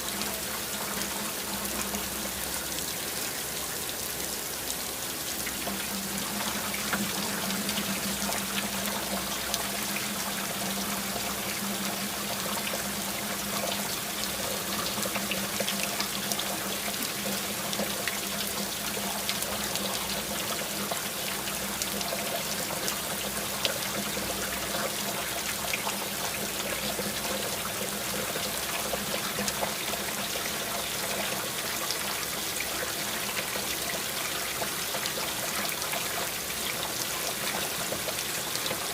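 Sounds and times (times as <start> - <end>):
steady rain: 0.0 - 38.9
water trickling: 0.0 - 38.9.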